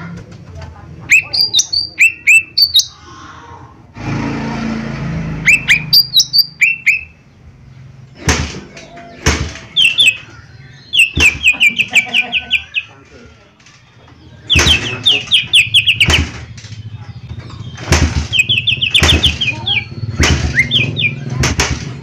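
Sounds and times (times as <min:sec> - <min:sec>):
bird whistled calls: 0:01.1 - 0:03.0, 0:05.4 - 0:07.2, 0:09.7 - 0:12.9, 0:14.2 - 0:21.4
loud sharp knocks: 0:08.2 - 0:10.3, 0:10.9 - 0:12.2, 0:14.5 - 0:16.6, 0:17.6 - 0:22.0.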